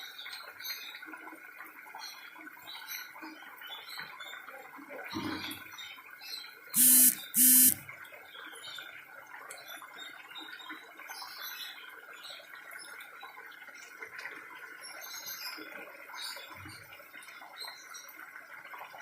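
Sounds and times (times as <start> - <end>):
loud buzzing electronic beep: 6.8 - 7.8.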